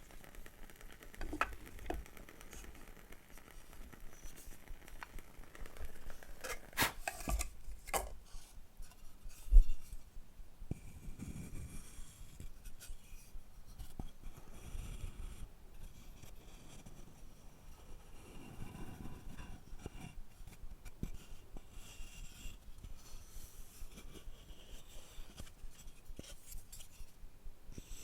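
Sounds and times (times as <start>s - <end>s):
scraping and rubbing on wood: 1.1s - 8.1s.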